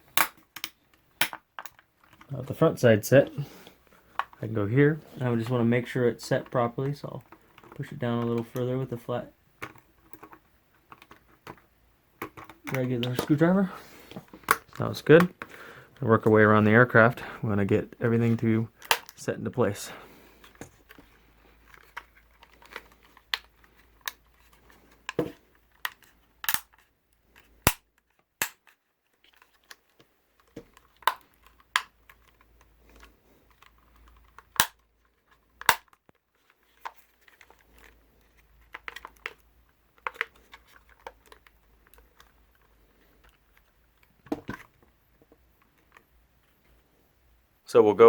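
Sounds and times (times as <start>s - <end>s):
plastic clips snapping: 0.1s - 1.8s, 25.8s - 26.8s, 28.4s - 28.7s, 33.6s - 34.8s.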